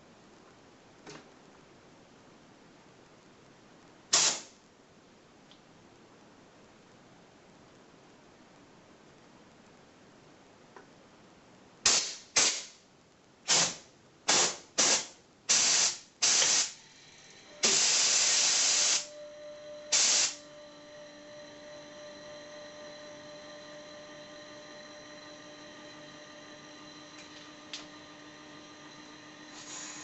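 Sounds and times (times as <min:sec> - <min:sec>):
faint steady hum: 0:00.0 - 0:30.0
compressed air hissing blasts: 0:04.1 - 0:04.5, 0:11.8 - 0:12.8, 0:13.5 - 0:16.8, 0:17.6 - 0:19.1, 0:19.9 - 0:20.4, 0:29.5 - 0:30.0.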